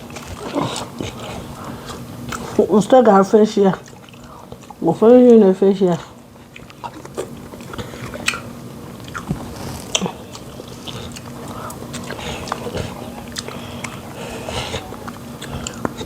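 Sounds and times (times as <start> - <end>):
faint steady hum: 0.0 - 16.0
wet chewing: 0.0 - 16.0.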